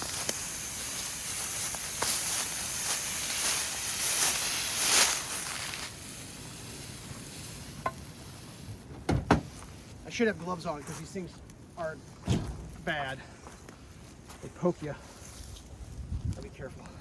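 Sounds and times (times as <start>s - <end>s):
footsteps through dry grass: 0.0s - 8.7s, 9.5s - 17.0s
tree dragged along the ground: 0.0s - 8.9s.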